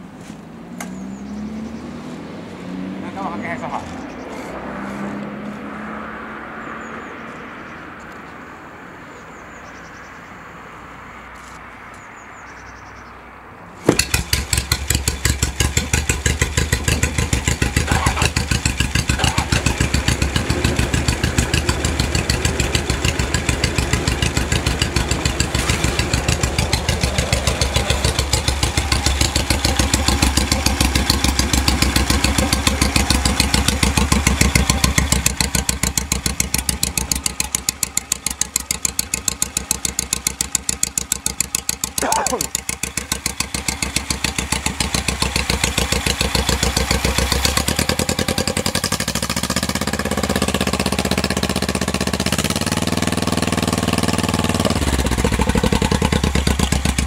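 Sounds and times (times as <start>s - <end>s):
car engine starting and idling: 13.8s - 57.0s.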